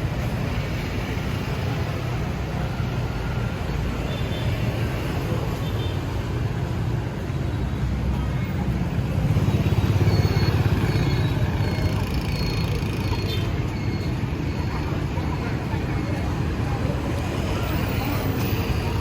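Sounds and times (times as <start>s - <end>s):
city street traffic: 0.0s - 19.0s
motorbikes passing: 0.0s - 19.0s.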